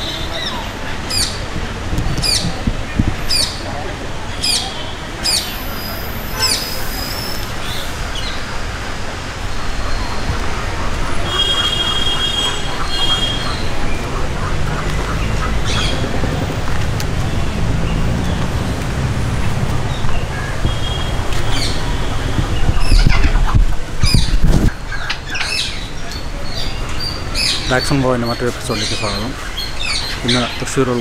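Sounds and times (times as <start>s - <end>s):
bird squawking: 11.1s - 16.3s.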